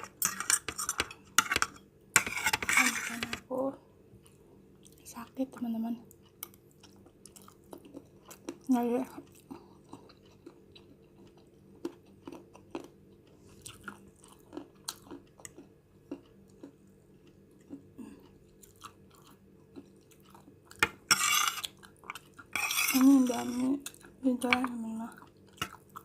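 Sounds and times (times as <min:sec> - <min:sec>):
person chewing noodles: 0:06.2 - 0:22.9, 0:25.1 - 0:26.0.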